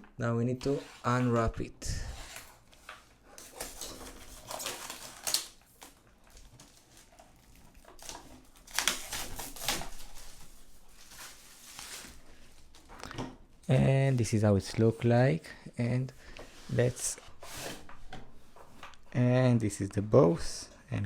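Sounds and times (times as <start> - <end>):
wrapping crinkling and tearing: 2.3 - 12.9.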